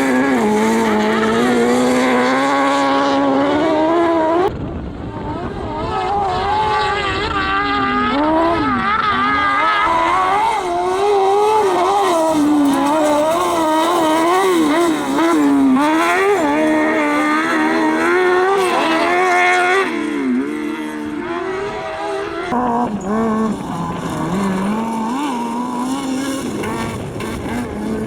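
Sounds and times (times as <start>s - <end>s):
engine revving: 0.0s - 28.0s.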